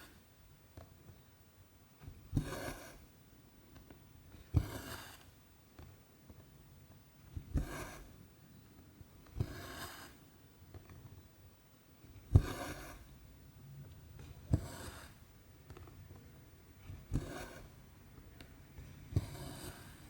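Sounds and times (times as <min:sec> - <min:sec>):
needle piercing cloth: 0:04.5 - 0:05.3, 0:09.3 - 0:10.2, 0:12.2 - 0:13.1.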